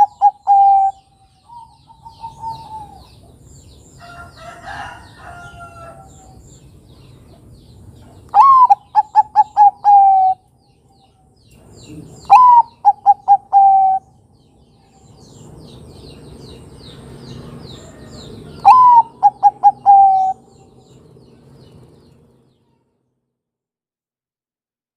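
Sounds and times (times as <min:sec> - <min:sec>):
dove cooing: 0:00.0 - 0:03.4, 0:08.4 - 0:10.4, 0:11.8 - 0:14.1, 0:17.4 - 0:20.8.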